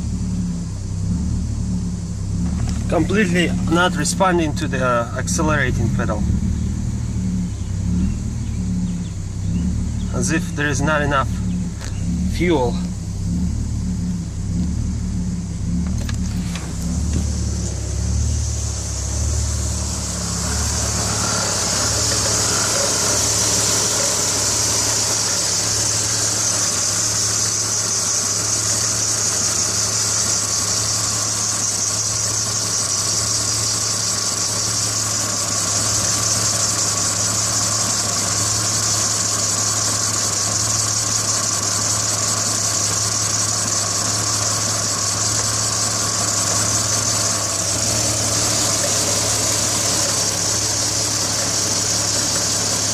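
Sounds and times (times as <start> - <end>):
car engine idling with misfire: 0.0 - 52.9
high hiss: 16.5 - 52.9.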